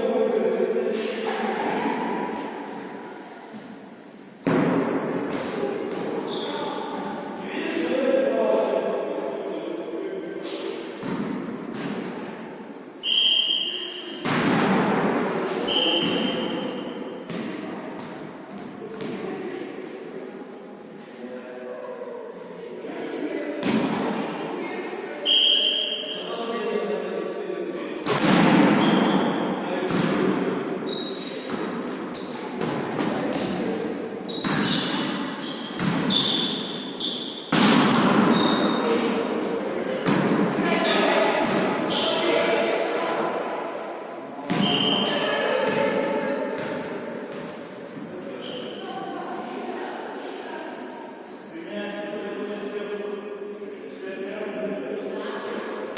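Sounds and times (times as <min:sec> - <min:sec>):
shoes squeaking on floor: 0:03.5 - 0:04.1, 0:06.2 - 0:06.8, 0:30.8 - 0:31.5, 0:32.1 - 0:32.6, 0:33.4 - 0:37.6, 0:38.3 - 0:39.4, 0:48.4 - 0:48.8
high whistle blasts: 0:13.0 - 0:14.0, 0:15.7 - 0:16.5, 0:25.2 - 0:26.3.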